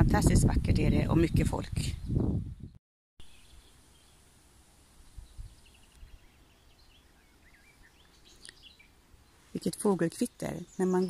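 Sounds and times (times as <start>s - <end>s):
faint songbird chirping and warbling: 2.0s - 4.3s, 4.9s - 11.0s.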